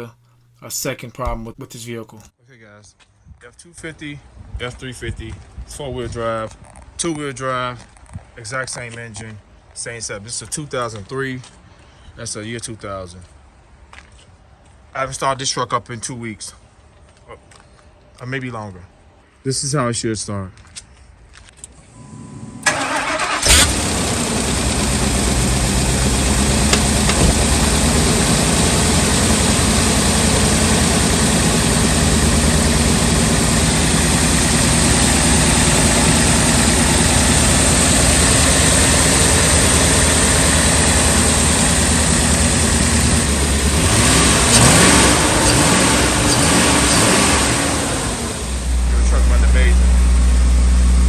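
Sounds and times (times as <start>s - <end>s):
engine idling: 22.4s - 51.0s
engine cranking: 22.6s - 49.9s.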